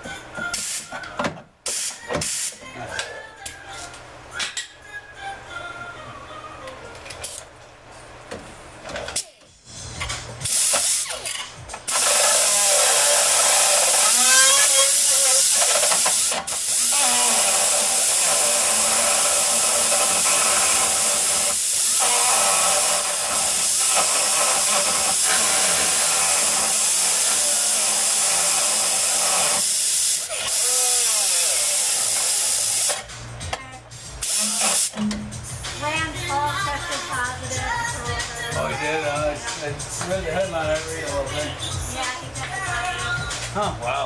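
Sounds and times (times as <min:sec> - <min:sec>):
faint radio playing: 0:00.0 - 0:44.0
metal-cutting tool hissing: 0:10.4 - 0:33.0, 0:34.2 - 0:35.0.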